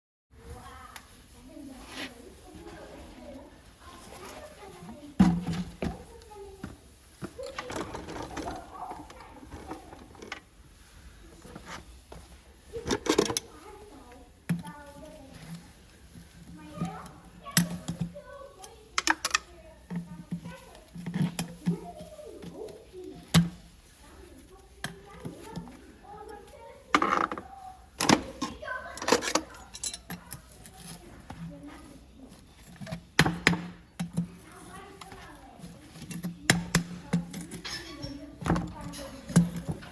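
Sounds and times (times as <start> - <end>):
metal tools clinking on hoof: 28.2 - 31.1, 34.0 - 39.9.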